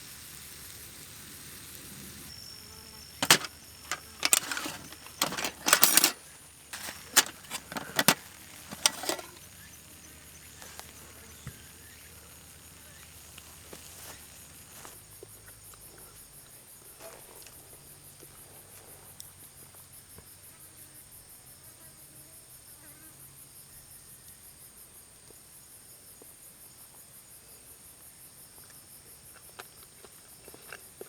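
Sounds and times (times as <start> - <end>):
insects chirping: 1.9 - 21.6
faint clicks and knocks: 3.2 - 9.5.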